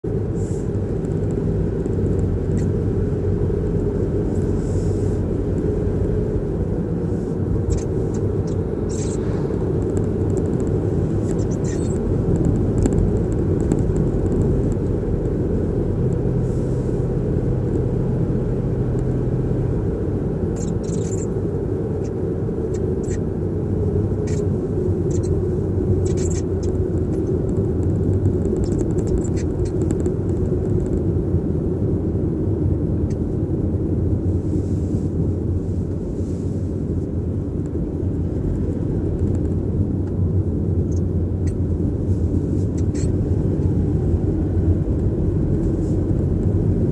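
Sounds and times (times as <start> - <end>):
car road rumble: 0.0 - 46.9
faint ticks or creaks: 20.6 - 21.3.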